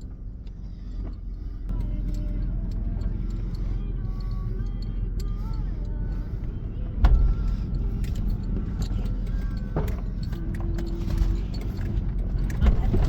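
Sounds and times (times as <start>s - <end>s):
engine and tyres rumbling: 0.0s - 13.0s
knocks and rattles over bumps: 6.4s - 13.0s.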